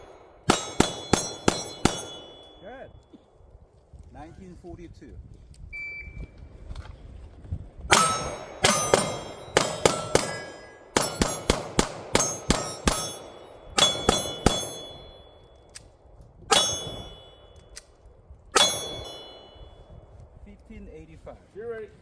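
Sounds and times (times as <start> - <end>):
pistol shots: 0.0 - 2.6, 7.9 - 15.4, 16.5 - 17.5
steel plate ringing: 0.0 - 2.8, 7.9 - 15.6, 16.5 - 17.8, 18.6 - 20.0.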